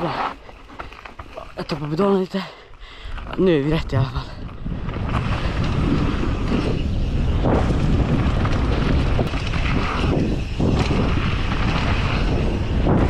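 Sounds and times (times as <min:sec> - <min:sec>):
wind buffeting microphone: 0:02.9 - 0:13.0.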